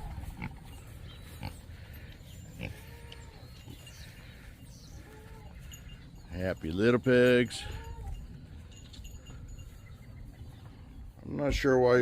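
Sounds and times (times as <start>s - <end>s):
pigs grunting while eating: 0.0s - 5.6s.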